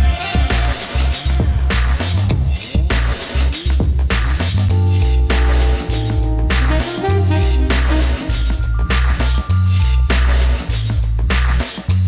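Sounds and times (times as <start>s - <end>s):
steady drum beat: 0.0s - 12.0s
heavy bass line: 3.7s - 11.6s
electronic music: 4.7s - 9.4s.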